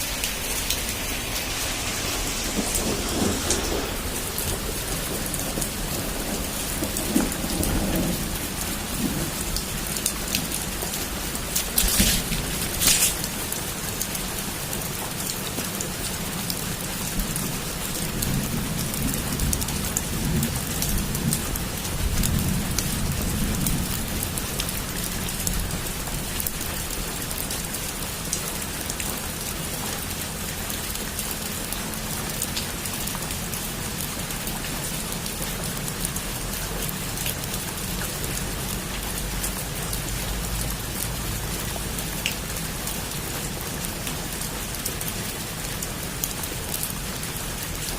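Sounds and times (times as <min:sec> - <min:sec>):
distant thunder rumbling: 0:00.0 - 0:14.4, 0:17.1 - 0:25.8
heavy rain on a roof: 0:00.0 - 0:47.9.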